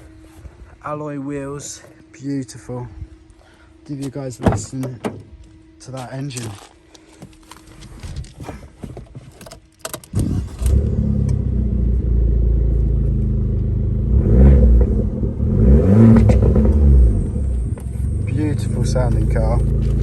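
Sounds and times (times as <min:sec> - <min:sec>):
car engine starting and revving: 0:10.1 - 0:20.0.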